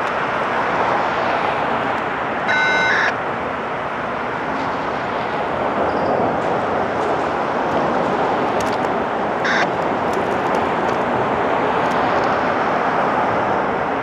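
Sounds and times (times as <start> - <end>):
freight train rolling by: 0.0 - 12.6
short high beep: 2.5 - 3.2, 9.4 - 9.7.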